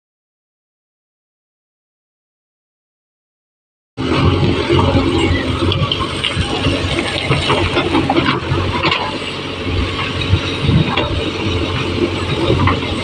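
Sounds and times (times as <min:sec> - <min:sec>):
diesel engine running: 0:04.0 - 0:13.0
machine knocks and clanks: 0:04.2 - 0:13.0.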